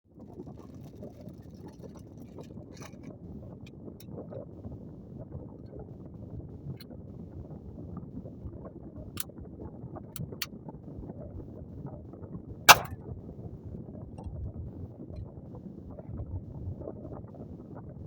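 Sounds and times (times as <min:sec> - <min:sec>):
wind rumbling on microphone: 0:00.0 - 0:18.0
suppressed gunshot: 0:12.7 - 0:12.9.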